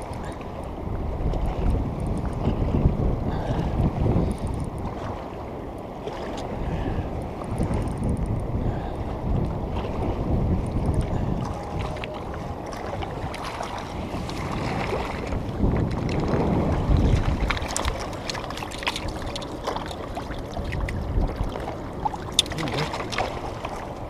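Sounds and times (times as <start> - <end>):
water noise: 0.0 - 24.0
wind rumbling on microphone: 0.0 - 24.0.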